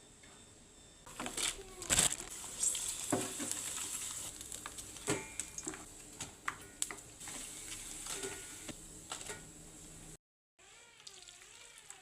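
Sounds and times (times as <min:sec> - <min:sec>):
kitchen utensils and dishes clinking: 0:05.0 - 0:09.5.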